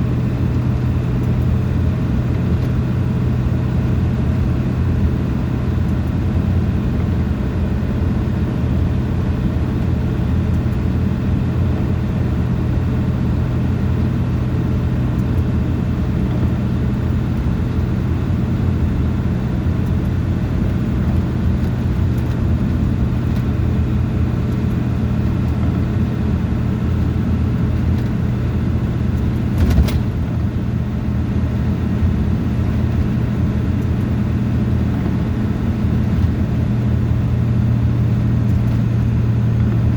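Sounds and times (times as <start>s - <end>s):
engine drone: 0.0s - 39.9s
road noise: 0.0s - 39.9s.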